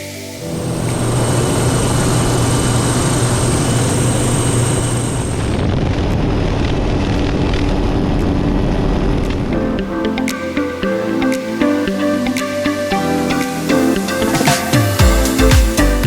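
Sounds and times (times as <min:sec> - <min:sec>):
faint high whine: 0:00.0 - 0:10.1
helicopter rotor and engine noise: 0:00.4 - 0:09.5
rushing wind: 0:00.4 - 0:09.8.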